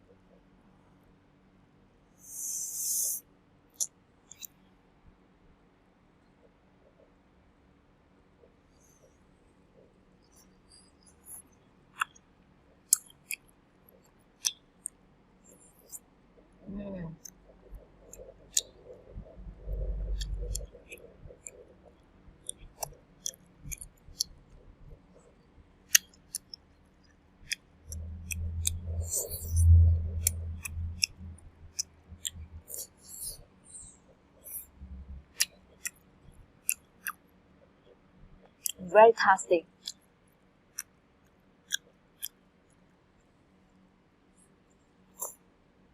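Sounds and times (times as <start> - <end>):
low muffled rumbles: 16.4 - 25.4, 27.9 - 32.7, 34.7 - 35.4
crunchy chewing: 17.2 - 26.7, 27.4 - 36.0.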